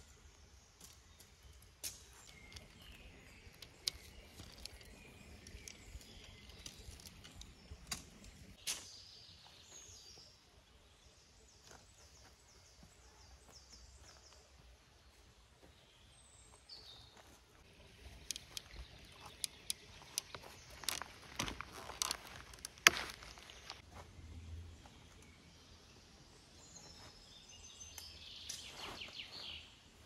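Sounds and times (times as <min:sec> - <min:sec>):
birds calling: 0:15.7 - 0:23.8.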